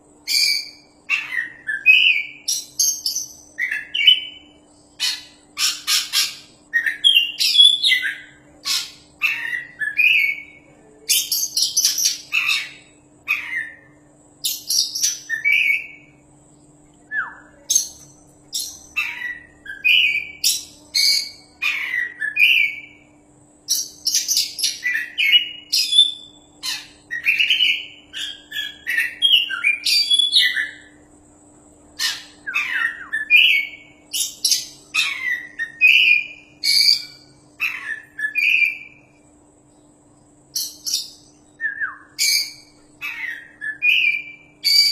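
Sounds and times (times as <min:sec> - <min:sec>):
songbird singing: 0:00.0 - 0:44.9.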